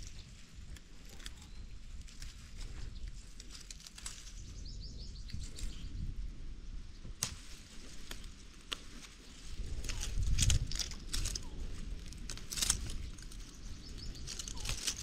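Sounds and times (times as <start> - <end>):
low outdoor rumble: 0.0 - 15.0
bird chirping: 4.1 - 6.1, 12.9 - 15.0.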